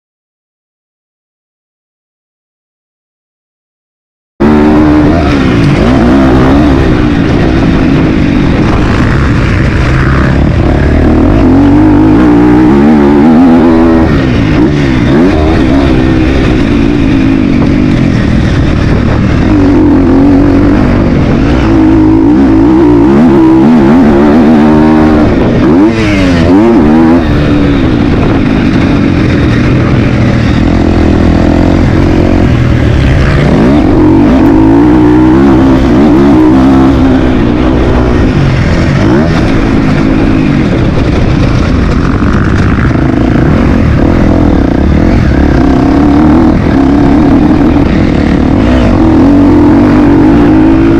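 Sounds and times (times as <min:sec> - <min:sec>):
motocross bike engine revving: 0:04.4 - 0:50.9.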